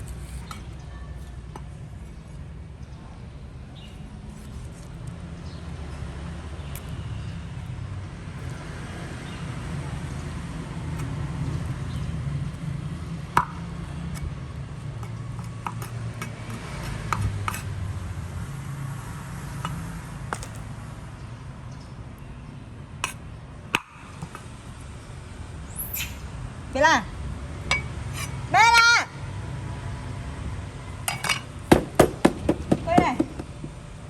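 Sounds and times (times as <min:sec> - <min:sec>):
small hard objects clinking: 0:31.1 - 0:33.8.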